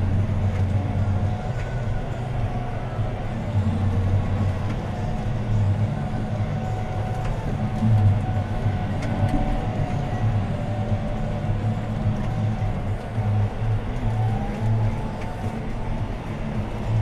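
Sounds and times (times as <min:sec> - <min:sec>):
thin steady whine: 0:00.0 - 0:17.0
tractor diesel engine drone: 0:00.0 - 0:17.0.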